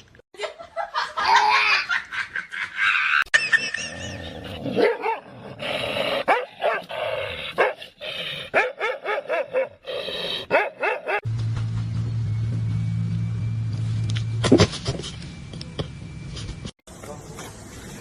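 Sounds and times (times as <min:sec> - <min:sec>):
dog barking and yipping: 0:04.7 - 0:05.3, 0:06.2 - 0:07.0, 0:07.6 - 0:07.8, 0:08.5 - 0:09.8, 0:10.5 - 0:11.2
low hum: 0:11.2 - 0:16.7.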